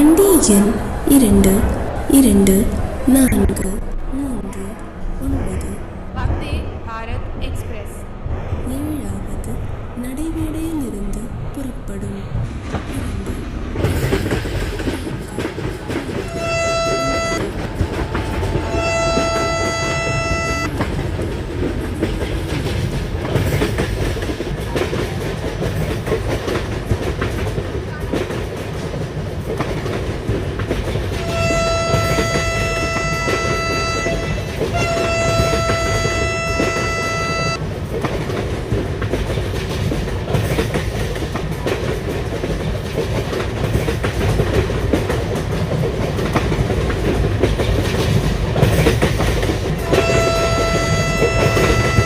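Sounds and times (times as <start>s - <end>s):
train rumble and wheel clatter: 0.0s - 52.0s
train horn blasts: 16.2s - 20.8s, 31.2s - 37.6s, 49.8s - 52.0s.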